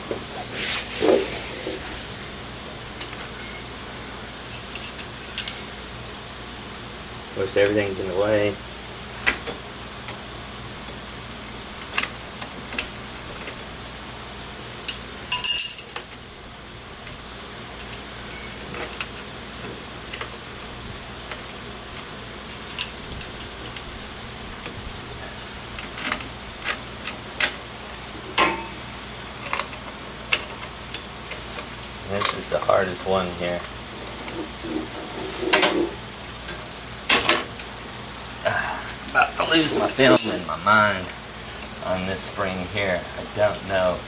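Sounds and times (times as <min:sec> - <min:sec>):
metal hardware clicking and clinking: 0:14.7 - 0:16.0, 0:17.8 - 0:18.1, 0:22.4 - 0:23.9, 0:39.8 - 0:40.5.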